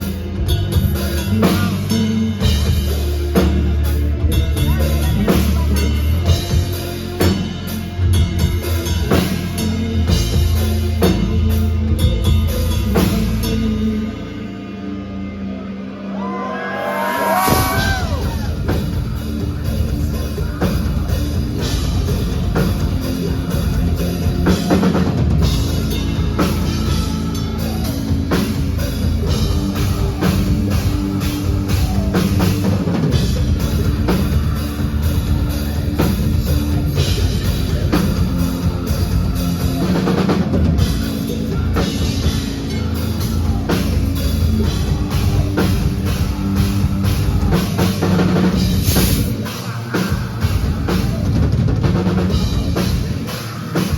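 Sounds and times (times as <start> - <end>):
pounding drum kit: 0.0 - 14.5, 16.1 - 53.9
heavy metal band playing: 0.0 - 53.9.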